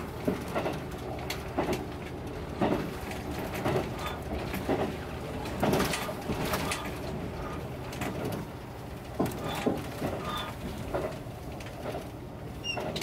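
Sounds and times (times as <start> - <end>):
train rumbling on track: 0.0 - 13.0
train knocks and squeaks: 2.6 - 8.5, 9.1 - 13.0.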